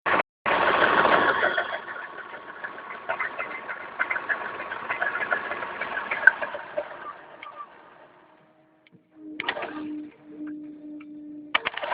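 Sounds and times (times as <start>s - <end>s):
gearbox clicking and rattling: 0.8s - 10.2s, 11.5s - 11.9s
electric motor whine: 6.9s - 11.9s.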